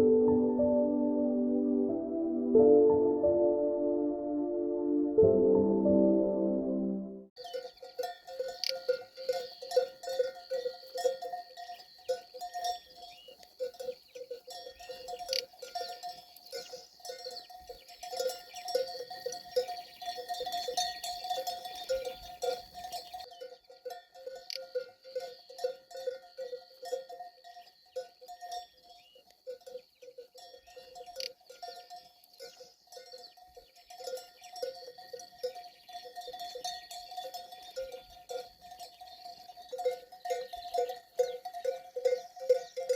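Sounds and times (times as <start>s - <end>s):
livestock bells clanking: 7.4s - 42.9s.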